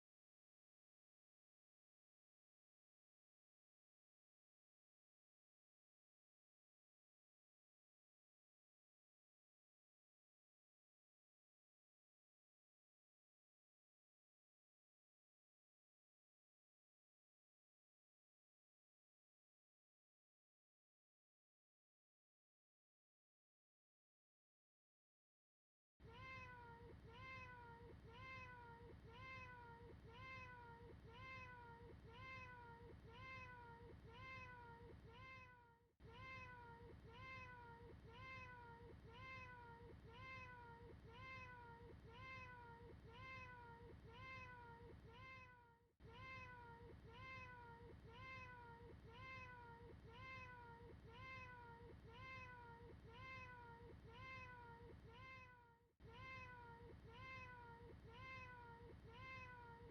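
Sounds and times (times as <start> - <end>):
cat meowing: 26.0 - 59.9.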